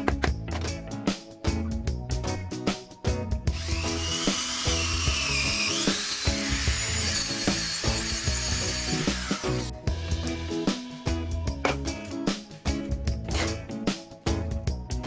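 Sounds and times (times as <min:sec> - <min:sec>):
background music with beat: 0:00.0 - 0:15.0
power tool whining: 0:03.5 - 0:09.8.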